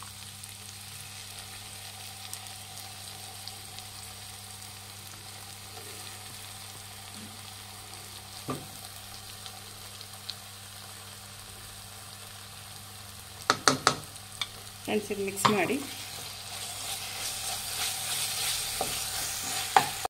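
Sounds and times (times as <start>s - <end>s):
vegetables sizzling in a pan: 0.0s - 20.0s.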